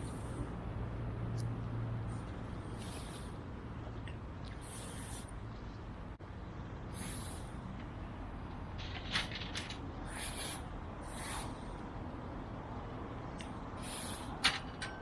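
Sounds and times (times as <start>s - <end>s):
steady low rumble: 0.0s - 15.0s
food hissing on wood fire: 7.0s - 7.4s, 10.1s - 11.5s, 13.8s - 14.3s.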